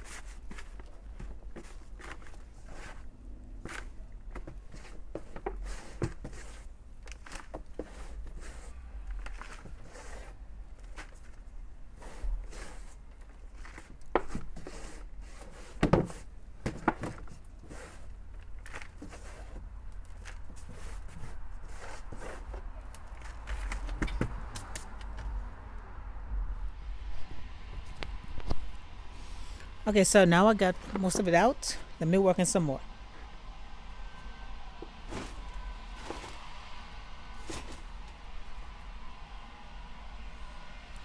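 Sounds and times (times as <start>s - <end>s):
soil rustling and scraping: 0.0s - 16.3s, 17.2s - 24.0s, 34.7s - 38.3s.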